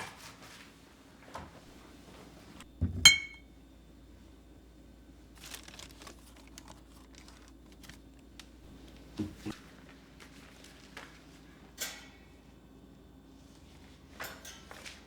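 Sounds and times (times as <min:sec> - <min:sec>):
ringing clink: 0:03.1 - 0:03.4.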